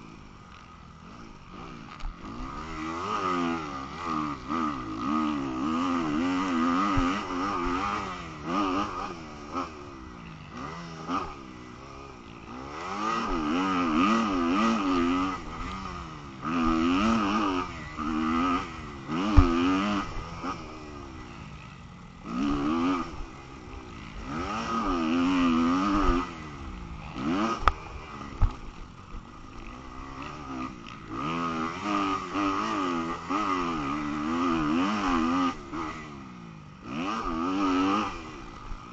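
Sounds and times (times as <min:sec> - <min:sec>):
dirt bike engine revving: 0:00.0 - 0:38.9
sharp thumps: 0:19.2 - 0:20.2.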